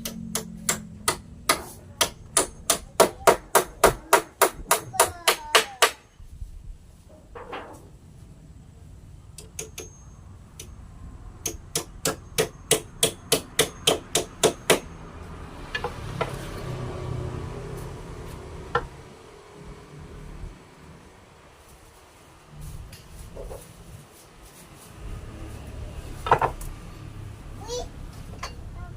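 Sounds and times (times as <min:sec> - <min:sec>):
hammer striking wood: 0:00.0 - 0:06.1, 0:11.4 - 0:15.0, 0:18.7 - 0:19.0
rubbing and handling noise: 0:21.5 - 0:26.7.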